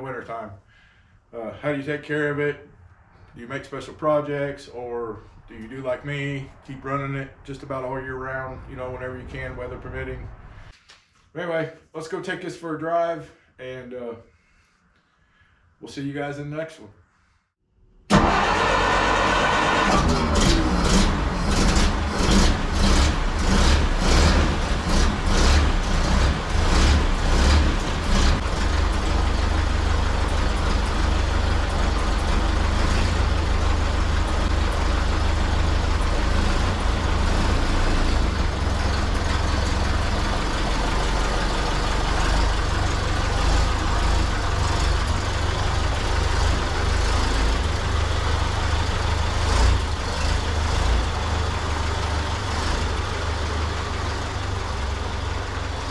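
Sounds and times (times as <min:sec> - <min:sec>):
road and wind noise: 0:05.2 - 0:10.8
car engine rumbling: 0:18.1 - 0:55.9.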